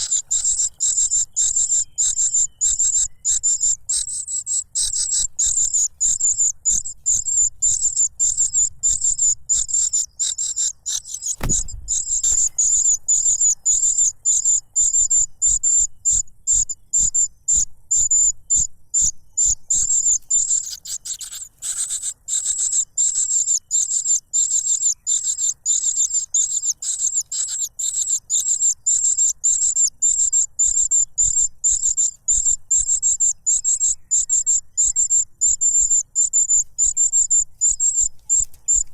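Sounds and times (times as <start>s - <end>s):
chick begging calls: 0.0s - 38.9s
low thump: 11.4s - 12.5s.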